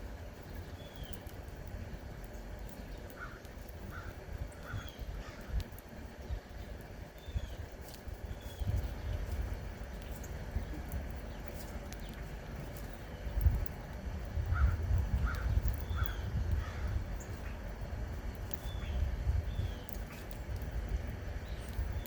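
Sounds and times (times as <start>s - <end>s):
low rumble: 0.0s - 22.0s
bird calls: 0.5s - 1.3s, 2.6s - 5.6s, 6.2s - 13.4s, 14.5s - 17.5s, 18.6s - 20.4s.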